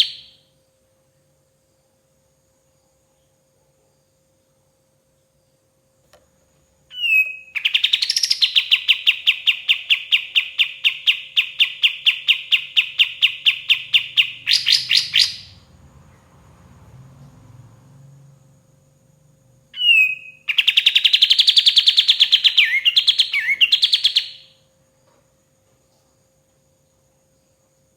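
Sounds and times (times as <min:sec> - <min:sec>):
bird whistling fast trill: 0:00.0 - 0:00.4, 0:06.9 - 0:15.6, 0:19.8 - 0:24.6.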